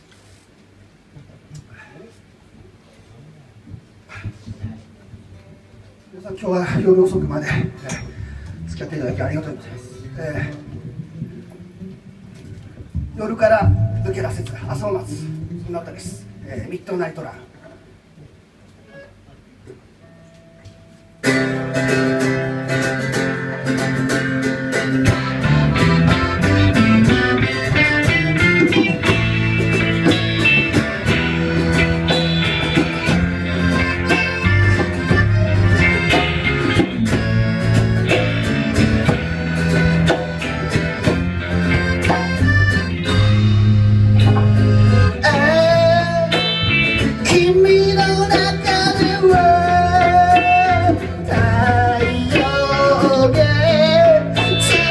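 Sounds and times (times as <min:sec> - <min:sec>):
guitar: 0:03.7 - 0:17.0, 0:18.6 - 0:54.9
bass and drums: 0:06.6 - 0:16.9, 0:21.2 - 0:54.9
person singing: 0:43.2 - 0:54.9.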